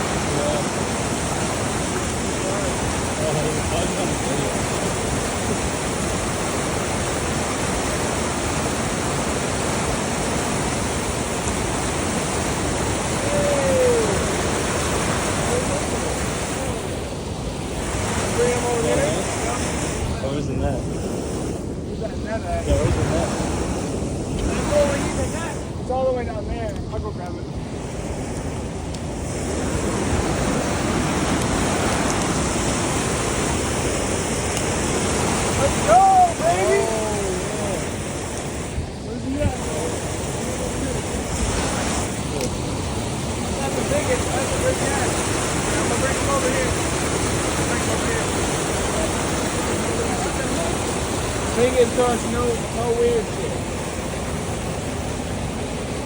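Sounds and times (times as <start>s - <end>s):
water pouring over dam: 0.0s - 19.8s, 39.3s - 56.0s
water pouring over a dam: 39.3s - 56.0s.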